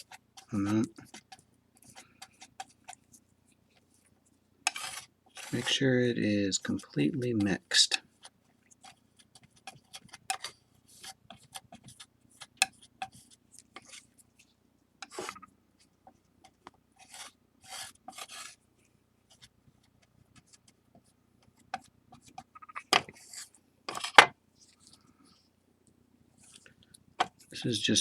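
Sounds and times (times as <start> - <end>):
tool scraping sticky dough: 0.0 - 14.4, 15.0 - 15.4, 16.1 - 18.6, 21.6 - 24.9.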